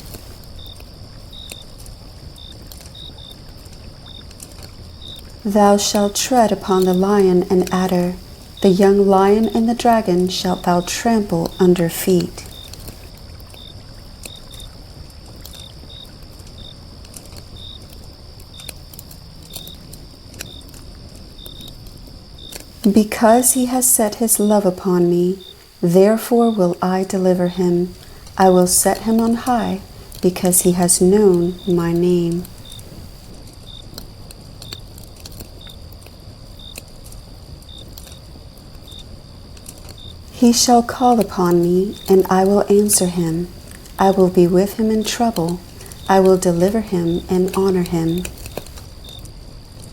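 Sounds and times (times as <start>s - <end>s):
high-pitched insect trill: 0.0s - 49.7s
low rumble and hiss: 0.0s - 49.9s
faint clicks: 45.3s - 46.1s, 47.1s - 49.9s.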